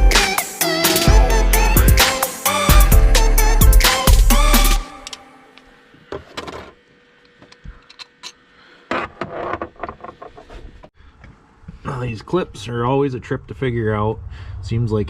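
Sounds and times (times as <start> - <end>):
music: 0.0 - 5.9.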